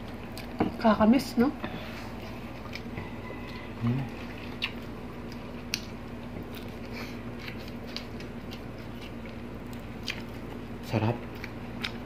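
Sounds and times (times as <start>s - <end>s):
people chewing: 0.0s - 0.7s, 1.6s - 12.0s
steady low hum: 0.0s - 12.0s.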